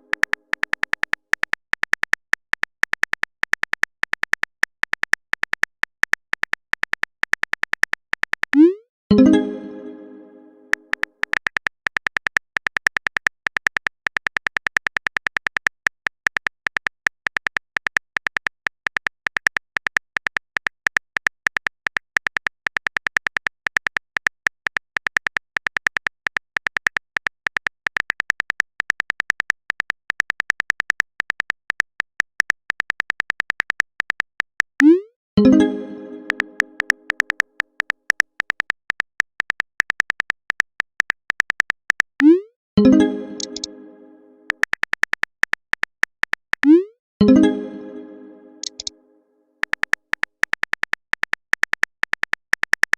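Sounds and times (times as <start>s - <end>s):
chat message sound: 8.6s - 11.0s, 34.8s - 37.2s, 42.2s - 44.5s, 46.7s - 48.9s
phone keyboard typing clicks: 10.7s - 43.9s, 44.5s - 48.9s, 49.6s - 52.9s.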